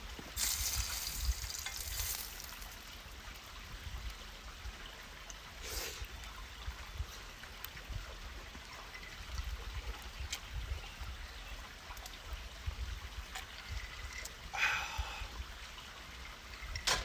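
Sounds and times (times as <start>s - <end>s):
steak sizzling over a fire: 0.2s - 3.1s.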